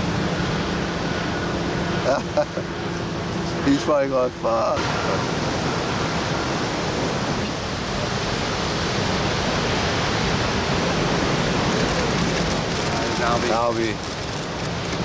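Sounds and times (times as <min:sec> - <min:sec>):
ocean surf: 0:00.0 - 0:15.0
wind: 0:00.0 - 0:15.0.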